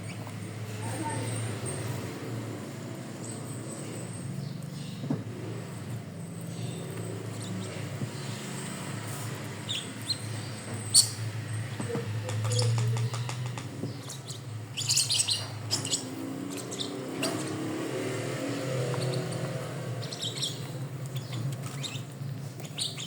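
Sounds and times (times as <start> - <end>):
bird chirping: 6.4 - 8.9, 9.6 - 23.0.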